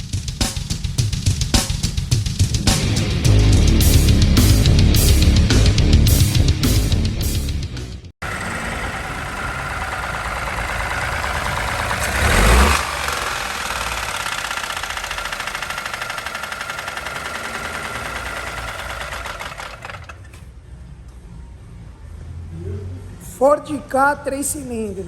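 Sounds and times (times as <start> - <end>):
car engine with rhythmic knocking: 8.2 - 20.6.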